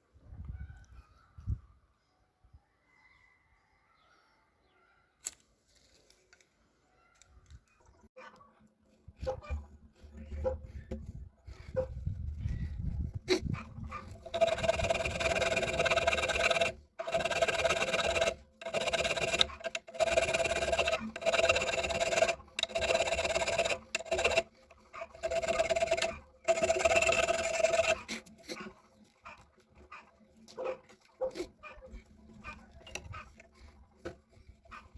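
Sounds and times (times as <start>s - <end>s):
drill press motor whining: 14.1s - 28.2s.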